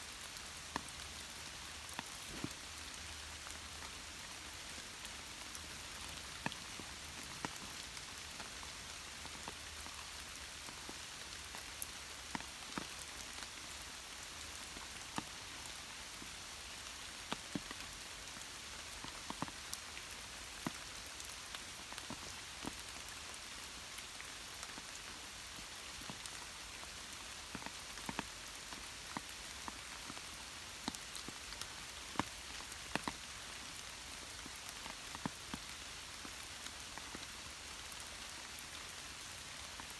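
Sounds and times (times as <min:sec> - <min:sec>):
light rain hissing: 0:00.0 - 0:39.9
raindrops tapping close by: 0:00.1 - 0:39.9.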